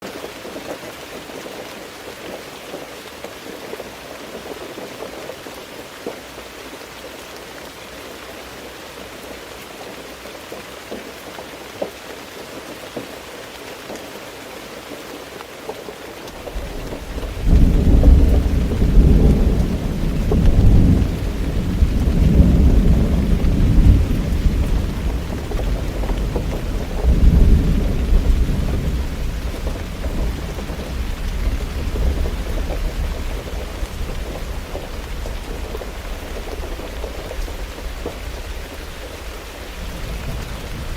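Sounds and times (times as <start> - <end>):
steady rain falling: 0.0 - 40.9
thunder rumbling: 16.4 - 40.9.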